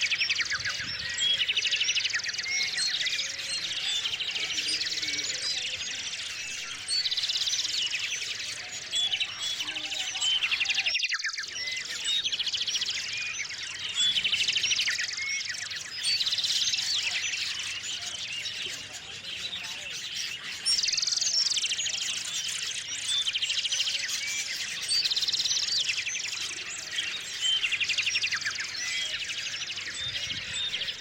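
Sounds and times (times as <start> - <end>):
songbirds chirping: 0.0 - 31.0
high bird trills: 18.7 - 21.6.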